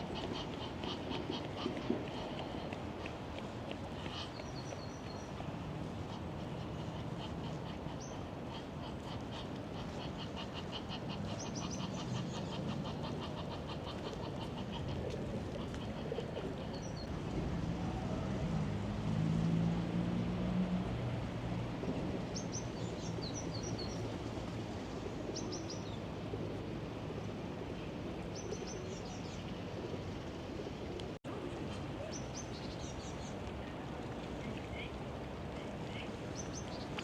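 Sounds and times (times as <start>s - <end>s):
city background hum: 0.0s - 37.0s
low engine hum: 17.0s - 28.3s.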